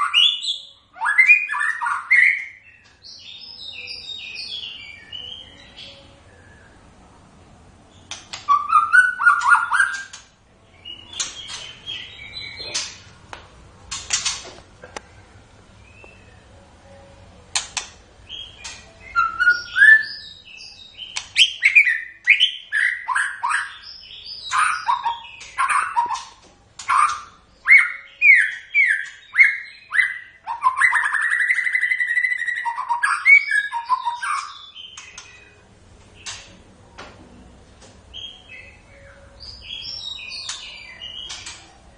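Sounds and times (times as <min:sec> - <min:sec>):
songbird singing whistles: 0:00.0 - 0:06.8, 0:08.1 - 0:10.2, 0:18.3 - 0:35.6, 0:38.1 - 0:41.6.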